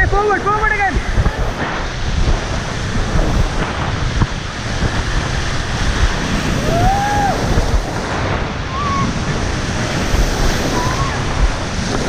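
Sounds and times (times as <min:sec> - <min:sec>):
river rapids rushing: 0:00.0 - 0:12.0
wind buffeting microphone: 0:00.0 - 0:12.0.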